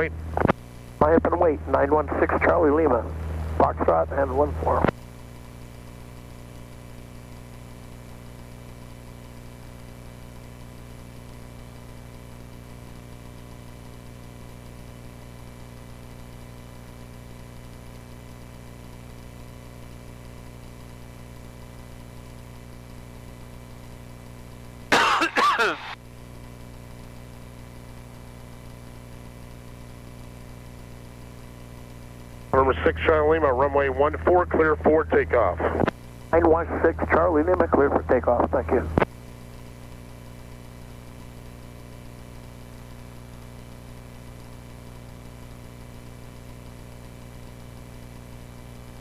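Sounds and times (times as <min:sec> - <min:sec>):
garbled radio transmission: 0:00.0 - 0:05.0, 0:24.9 - 0:26.0, 0:32.6 - 0:39.1
aircraft engine idling: 0:01.2 - 0:04.8.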